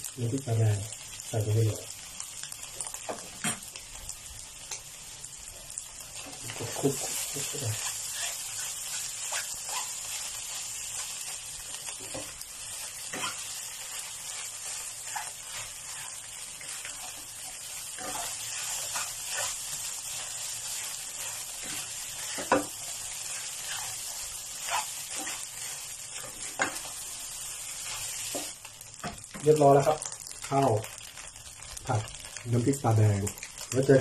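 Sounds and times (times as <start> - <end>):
fried rice sizzling in a pan: 0.0 - 34.0
spatula scraping and knocking pan: 6.2 - 10.2, 11.9 - 27.0.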